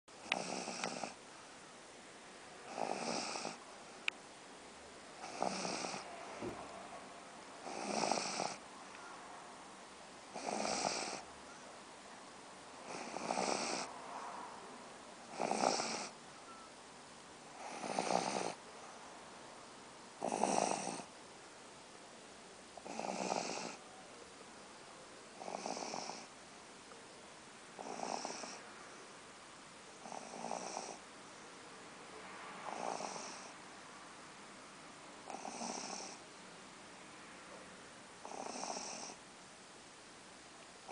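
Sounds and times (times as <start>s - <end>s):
dog snoring: 0.2s - 1.2s, 2.6s - 3.6s, 5.2s - 6.7s, 7.6s - 8.6s, 10.3s - 11.3s, 12.8s - 14.0s, 15.3s - 16.2s, 17.5s - 18.6s, 20.2s - 21.1s, 22.8s - 23.8s, 25.4s - 26.3s, 27.8s - 28.6s, 30.0s - 31.0s, 32.6s - 33.6s, 35.2s - 36.2s, 38.2s - 39.2s.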